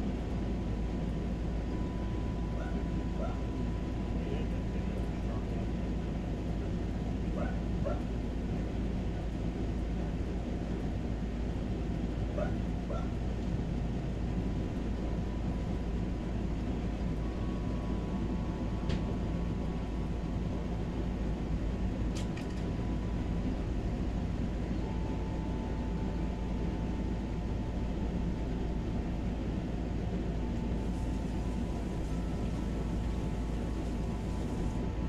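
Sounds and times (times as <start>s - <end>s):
dog barking: 2.6s - 3.4s, 7.4s - 8.0s, 12.4s - 13.1s.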